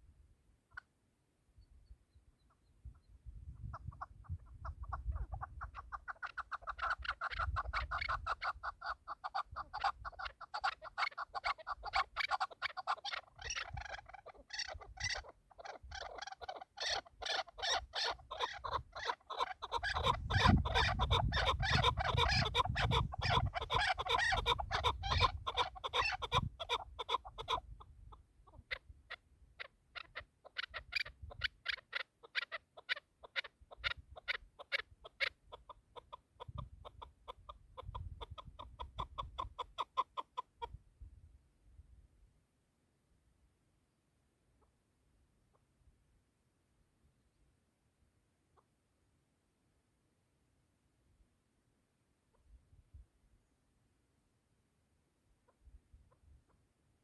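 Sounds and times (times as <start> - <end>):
partridges clucking calls: 3.6 - 27.8, 30.0 - 40.5.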